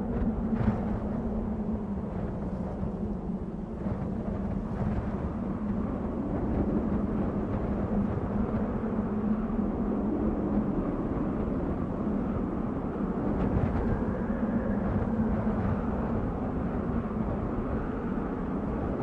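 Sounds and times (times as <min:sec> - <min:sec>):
wind blowing: 0:00.0 - 0:19.0.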